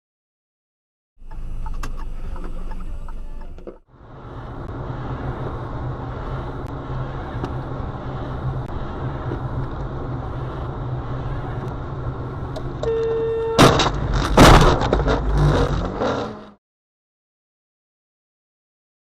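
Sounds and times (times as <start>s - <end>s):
car road and engine noise: 1.2s - 16.6s
car horn: 12.8s - 13.9s
loud bang: 13.6s - 15.7s.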